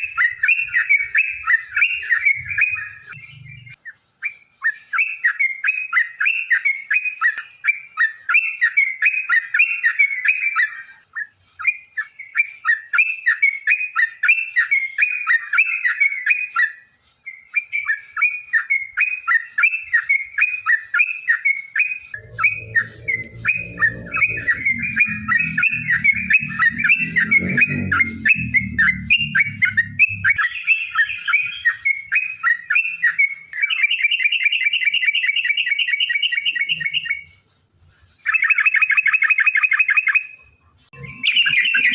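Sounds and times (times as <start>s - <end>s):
bird chattering song: 0.0s - 37.4s, 38.2s - 41.9s
faint low rumble: 2.4s - 3.8s, 22.2s - 31.5s.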